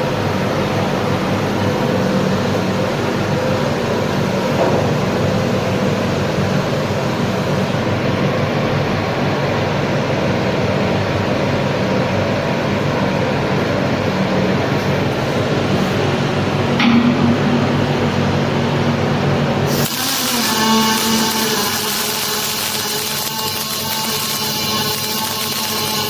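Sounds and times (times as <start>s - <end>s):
low electrical hum: 0.0s - 26.0s
welding hiss and buzz: 19.6s - 26.0s.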